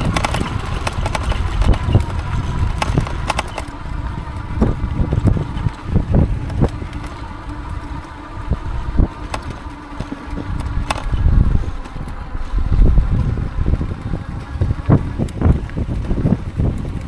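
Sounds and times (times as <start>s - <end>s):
sharp clicks: 0.0s - 3.8s, 9.2s - 12.2s
faint steady whine: 0.0s - 17.0s
wind buffeting microphone: 0.0s - 17.0s.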